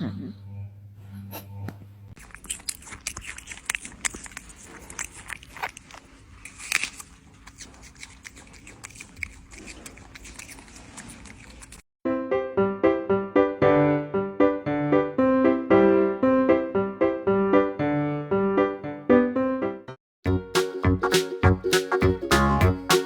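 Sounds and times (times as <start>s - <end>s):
piano music: 12.1s - 23.0s.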